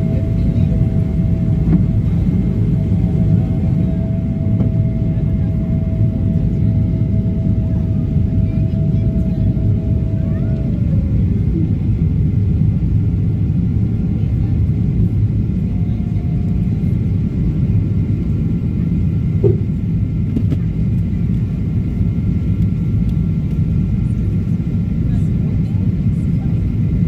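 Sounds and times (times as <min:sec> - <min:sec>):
faint whining tones: 0:00.0 - 0:12.4
airliner engine rumble in cabin: 0:00.0 - 0:27.0.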